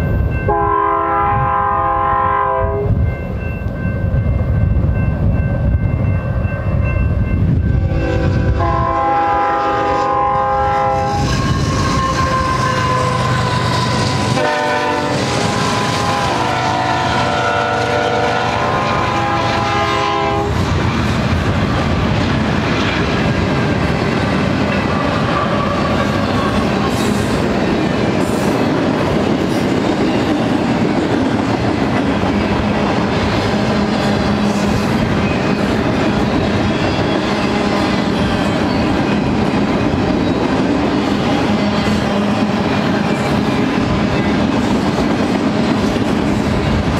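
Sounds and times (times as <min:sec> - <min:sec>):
train rumbling past: 0:00.0 - 0:46.9
locomotive air horn blasts: 0:00.5 - 0:02.9, 0:07.8 - 0:20.6.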